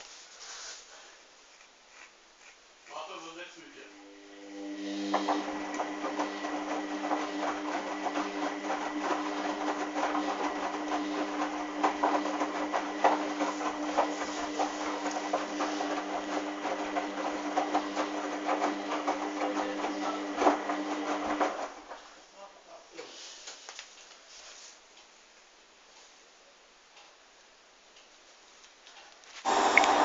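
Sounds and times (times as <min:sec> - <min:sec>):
washing machine motor hum: 0:03.8 - 0:22.1, 0:29.4 - 0:30.0.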